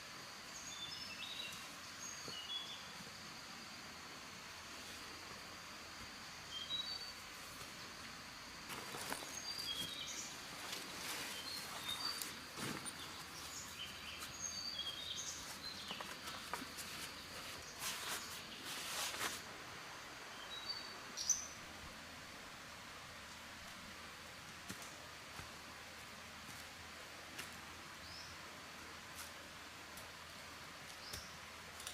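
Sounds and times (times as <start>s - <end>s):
small birds chirping: 0.6s - 3.0s, 8.8s - 19.3s
rustles and knocks: 10.6s - 13.5s.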